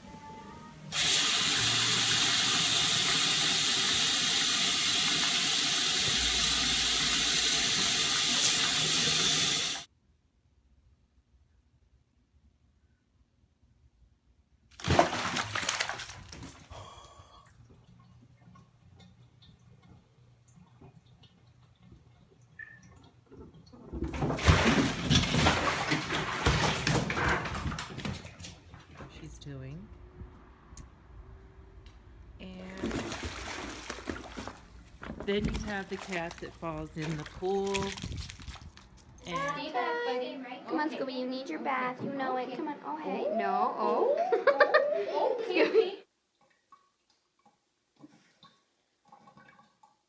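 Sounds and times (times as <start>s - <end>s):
water running from a tap: 0.9s - 9.9s, 32.7s - 38.7s
water rushing and splashing: 32.7s - 38.0s.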